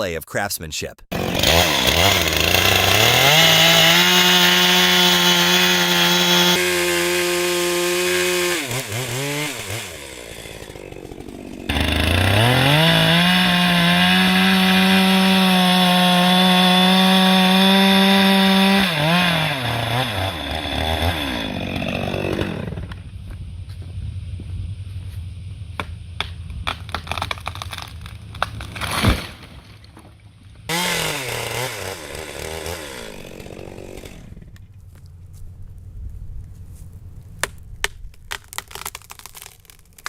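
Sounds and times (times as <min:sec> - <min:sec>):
chainsaw cutting wood: 0:01.1 - 0:23.1, 0:26.2 - 0:29.4, 0:30.7 - 0:34.6.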